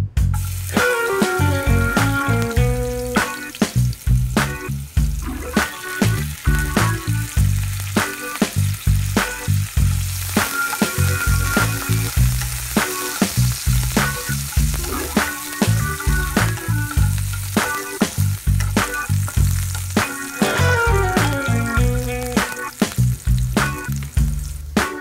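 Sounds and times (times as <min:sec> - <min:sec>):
music with a steady beat: 0:00.0 - 0:25.0
garlic and chillies sizzling in oil: 0:00.3 - 0:25.0.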